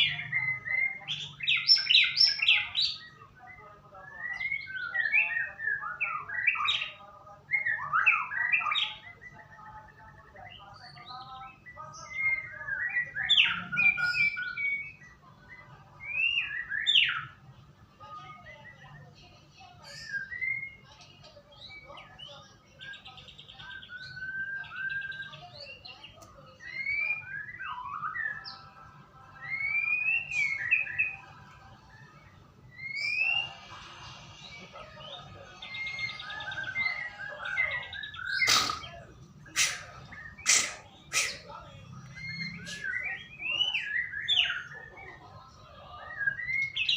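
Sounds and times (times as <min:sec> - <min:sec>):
bird singing whistled phrases: 0:12.1 - 0:15.1, 0:16.0 - 0:17.4, 0:19.9 - 0:20.8, 0:23.7 - 0:25.9, 0:26.6 - 0:28.6, 0:29.4 - 0:31.2, 0:32.7 - 0:33.6, 0:39.6 - 0:44.7, 0:46.2 - 0:46.9
harsh noisy bird note: 0:32.7 - 0:44.7.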